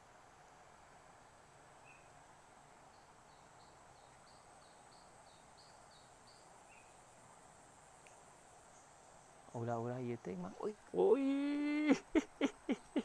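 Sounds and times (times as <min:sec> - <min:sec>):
faint high whine: 0:00.0 - 0:13.0
small bird chirping: 0:01.2 - 0:02.2, 0:02.8 - 0:07.2.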